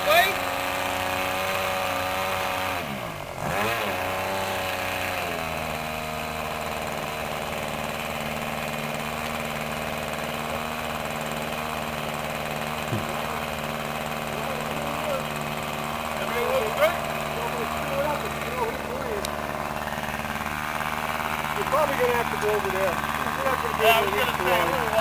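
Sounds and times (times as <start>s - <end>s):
model airplane engine running: 0.0s - 25.0s.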